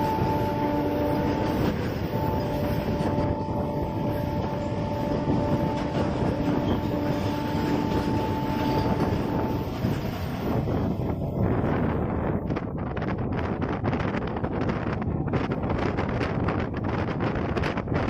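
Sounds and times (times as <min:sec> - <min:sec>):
train motor whine: 0:00.0 - 0:11.9
train wheels rumbling on rails: 0:00.0 - 0:18.0.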